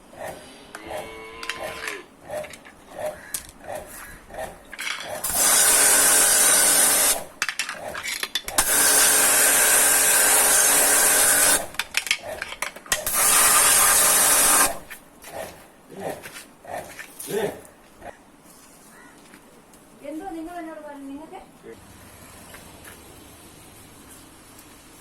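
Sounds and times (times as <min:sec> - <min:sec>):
pressure washer spraying water: 0:05.2 - 0:07.3, 0:08.6 - 0:11.7, 0:13.0 - 0:14.8.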